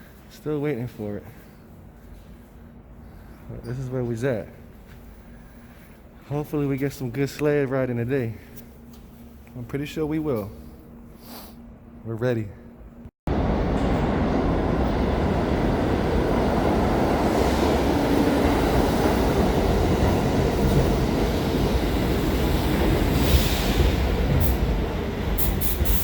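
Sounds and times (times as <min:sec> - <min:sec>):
subway train wheels rumbling: 0:13.3 - 0:26.0
hiss burst: 0:25.4 - 0:26.0.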